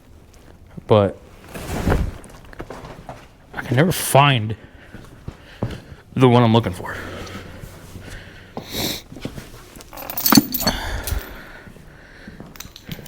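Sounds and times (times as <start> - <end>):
metal chains clinking and rattling: 9.9 - 11.5, 12.6 - 13.0.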